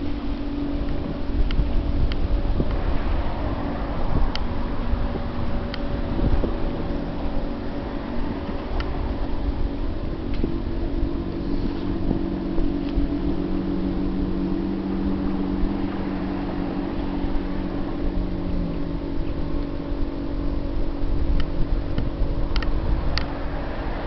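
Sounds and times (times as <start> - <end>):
low rumble: 0.0 - 24.0
ship engines droning: 0.0 - 24.0.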